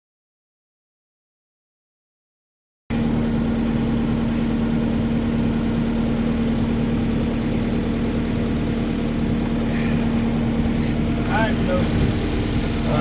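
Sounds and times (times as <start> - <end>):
engine idling: 2.9 - 13.0.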